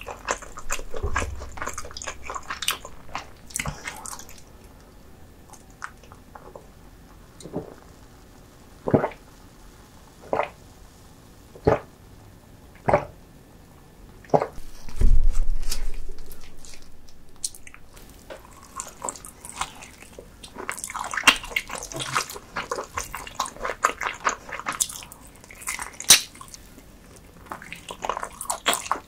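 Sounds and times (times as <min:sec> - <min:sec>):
wet chewing and biting: 0:00.0 - 0:04.5, 0:16.2 - 0:26.6, 0:27.5 - 0:29.0.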